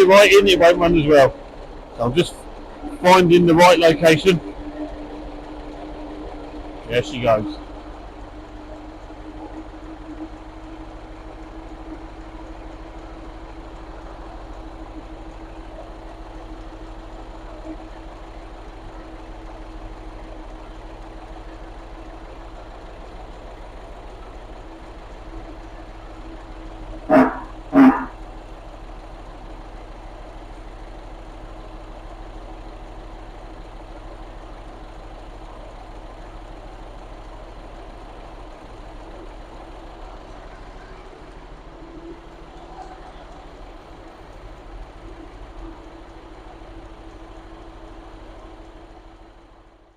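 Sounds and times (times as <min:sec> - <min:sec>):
bus engine idling: 0:00.0 - 0:49.9
short loud calls: 0:27.1 - 0:28.2.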